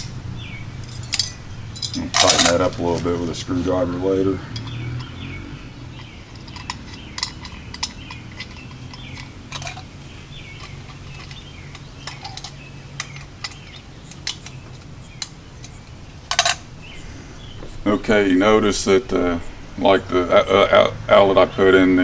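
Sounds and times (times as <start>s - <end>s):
metal rattle: 0.0s - 21.7s
small metallic clicks and taps: 4.5s - 5.2s, 5.9s - 16.6s.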